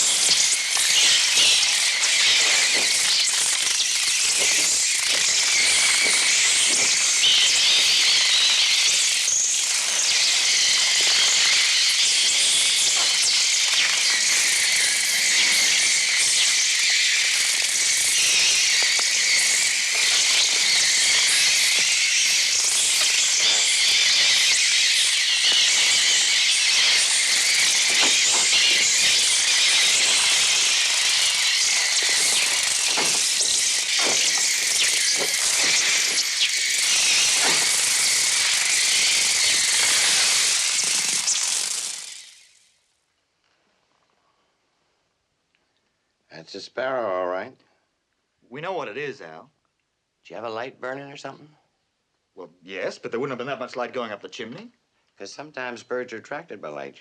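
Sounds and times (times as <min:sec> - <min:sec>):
sparrows twittering: 0:00.0 - 0:42.6
birds fluttering: 0:00.0 - 0:42.7.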